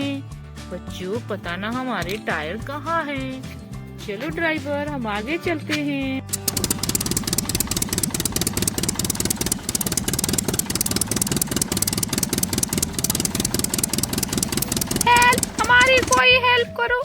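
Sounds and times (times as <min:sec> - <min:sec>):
vehicle engine chugging: 0:06.4 - 0:17.0.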